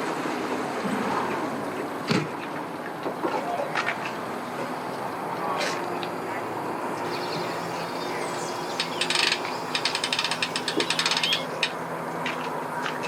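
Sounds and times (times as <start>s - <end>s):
winch ratchet clicking: 7.1s - 11.4s
steady engine hum: 7.1s - 11.5s.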